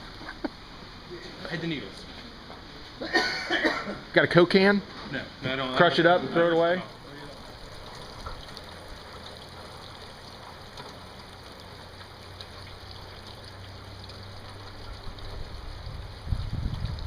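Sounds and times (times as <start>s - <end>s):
low steady hum: 0.0s - 17.0s
low rumbling thumps: 15.5s - 17.0s.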